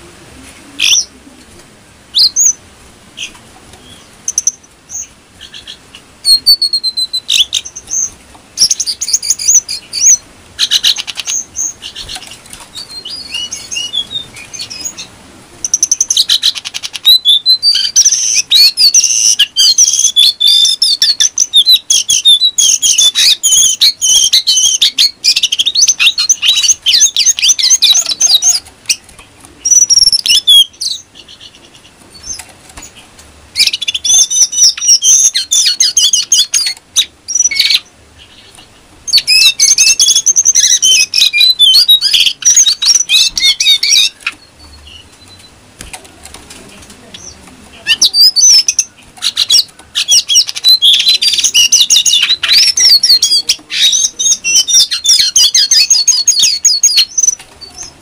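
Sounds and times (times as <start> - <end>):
bird singing high chirps: 3.2 - 29.0, 29.6 - 32.4, 33.6 - 45.6, 47.2 - 58.0.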